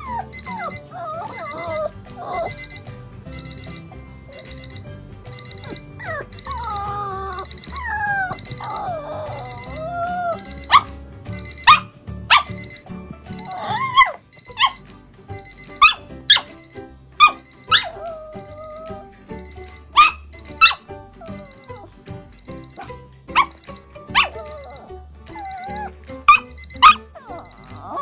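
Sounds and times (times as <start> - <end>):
dog gliding cries: 0.0 - 2.7, 5.6 - 10.9, 13.4 - 14.8, 17.2 - 19.0, 20.0 - 21.9, 22.8 - 28.0
small dog yipping: 0.0 - 2.8, 5.4 - 10.9, 11.6 - 12.7, 13.4 - 14.8, 15.8 - 16.6, 17.2 - 19.0, 20.0 - 21.9, 22.7 - 28.0
background music: 0.0 - 28.0.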